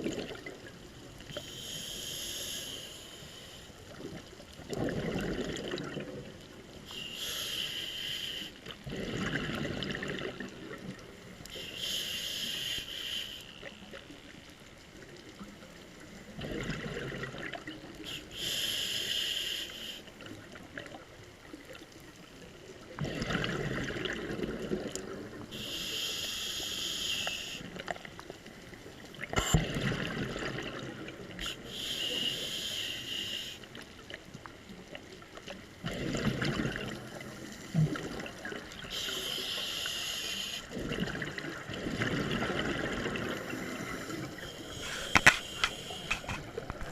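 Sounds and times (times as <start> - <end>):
regulator inhale hiss: 1.3 - 3.8, 6.9 - 8.8, 11.4 - 13.8, 18.0 - 20.2, 25.5 - 27.8, 31.4 - 33.8, 38.8 - 40.8, 43.4 - 46.9.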